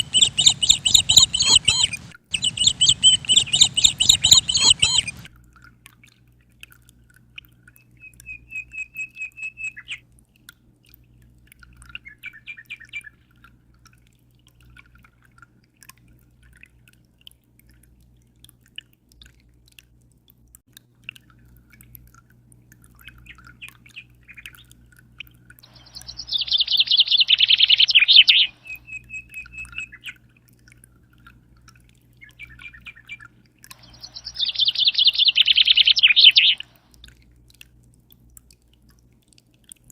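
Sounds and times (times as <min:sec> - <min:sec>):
birds chirping and trilling: 0:00.0 - 0:05.3, 0:25.7 - 0:30.2, 0:32.2 - 0:36.8
fast buzzy birdsong: 0:00.0 - 0:05.3, 0:25.7 - 0:30.1, 0:33.8 - 0:36.6
steady low hum: 0:00.0 - 0:05.3.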